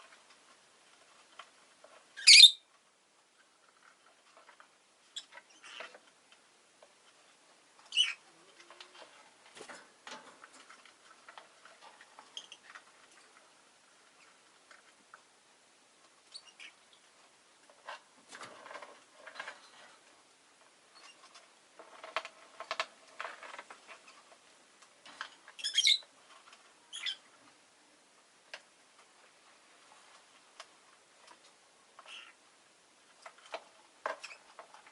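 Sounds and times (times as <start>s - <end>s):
soft scratching and rustling: 0.0s - 2.2s, 2.8s - 15.3s, 16.0s - 32.4s
lovebird chirps: 2.2s - 2.7s, 7.9s - 8.2s, 25.6s - 26.0s, 26.9s - 27.2s.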